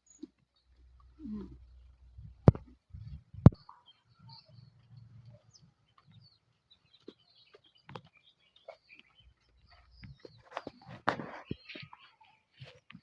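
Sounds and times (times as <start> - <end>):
faint bird chirps: 3.0 - 13.0.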